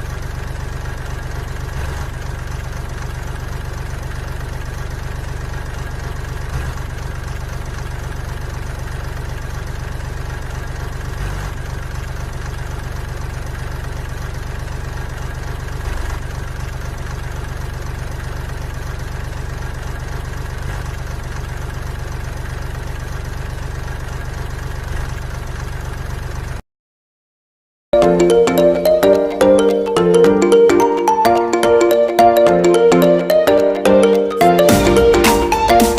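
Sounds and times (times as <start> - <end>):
music: 28.0 - 35.9.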